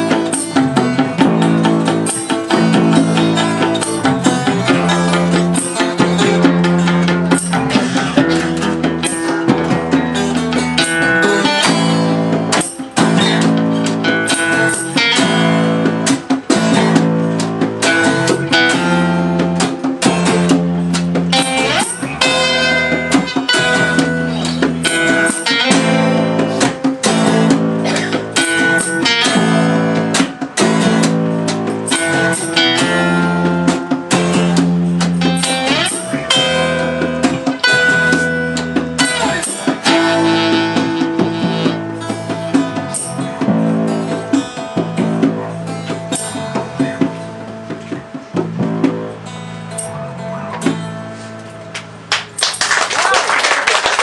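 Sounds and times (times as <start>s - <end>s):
guitar chords: 0.0s - 52.6s
live band playing: 0.0s - 54.0s.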